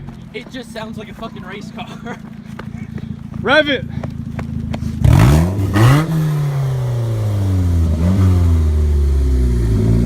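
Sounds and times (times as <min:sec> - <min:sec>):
car engine revving: 0:02.3 - 0:10.0.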